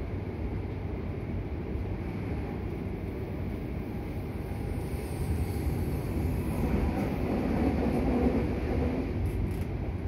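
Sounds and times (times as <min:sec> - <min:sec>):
electric train wheels rumbling: 0:00.0 - 0:10.0.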